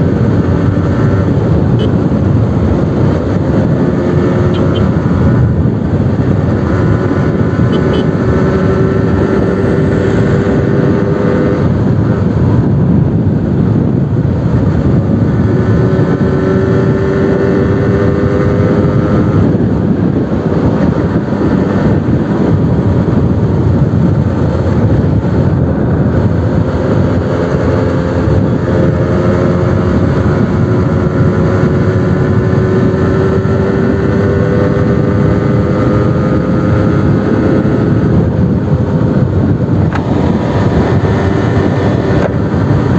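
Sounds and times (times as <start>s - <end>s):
steady rushing noise: 0.0s - 42.9s.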